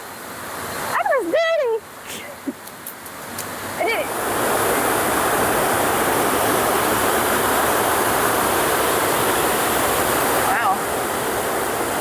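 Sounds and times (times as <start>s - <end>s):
waterfall rushing: 3.5s - 12.0s.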